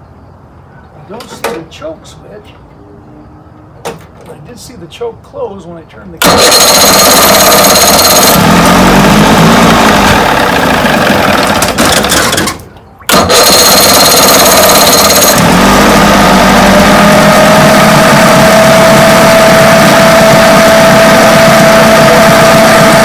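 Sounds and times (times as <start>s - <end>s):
outboard motor running roughly: 6.2s - 23.0s.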